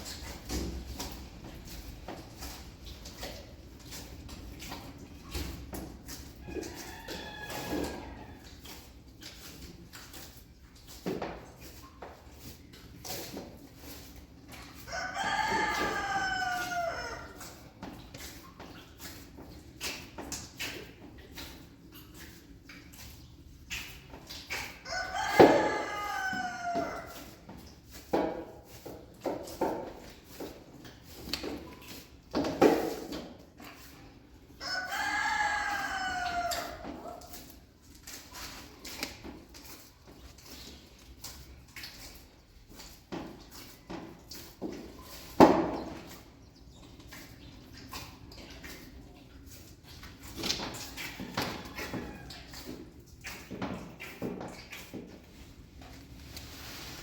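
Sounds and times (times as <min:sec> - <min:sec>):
rooster crowing: 0:06.4 - 0:08.3, 0:14.9 - 0:17.3, 0:24.9 - 0:27.2, 0:34.6 - 0:37.2.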